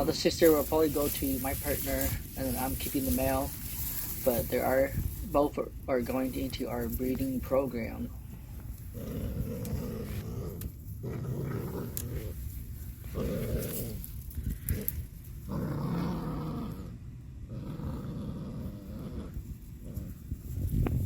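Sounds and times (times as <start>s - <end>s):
puppies growling: 8.8s - 20.5s.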